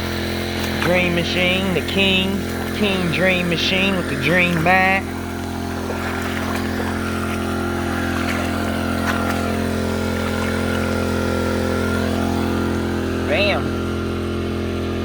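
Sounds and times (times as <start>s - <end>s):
small gasoline engine running: 0.0s - 15.0s.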